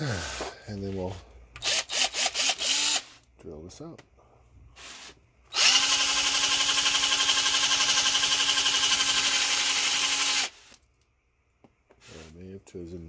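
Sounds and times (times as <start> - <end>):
electric drill spinning: 1.6 - 3.2, 5.5 - 10.8.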